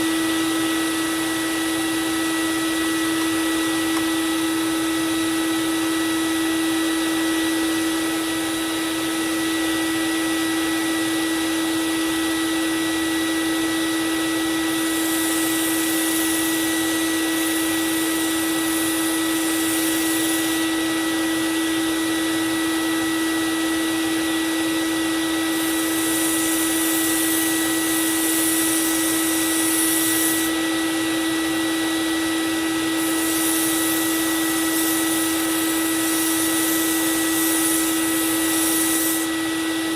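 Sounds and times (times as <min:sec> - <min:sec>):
belt sander motor whine: 0:00.0 - 0:39.9
blade grinding on belt: 0:14.6 - 0:21.6, 0:24.8 - 0:31.7, 0:32.3 - 0:39.9.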